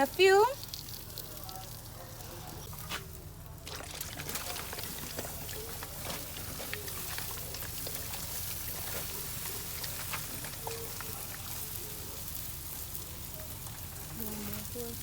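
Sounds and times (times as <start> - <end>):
low steady rain rumble: 0.0 - 3.6, 4.8 - 15.0
raindrops ticking on surfaces: 0.0 - 15.0.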